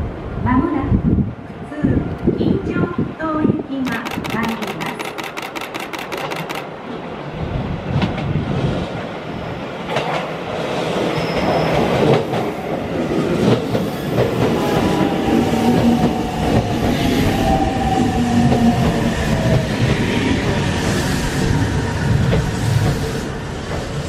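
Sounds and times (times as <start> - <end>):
electric train rumbling past: 0.0 - 24.0
train clacking over rail joints: 3.8 - 7.1, 13.4 - 16.7.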